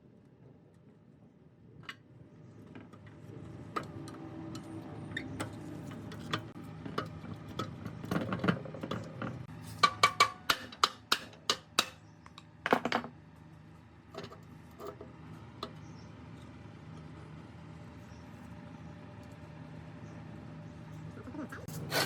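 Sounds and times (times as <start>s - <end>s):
tool strikes on metal: 9.7s - 12.0s.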